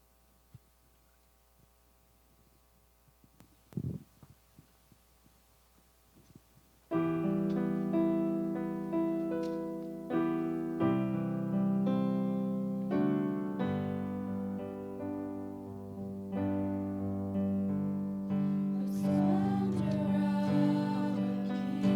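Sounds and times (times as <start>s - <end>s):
piano chords and melody: 6.9s - 21.9s.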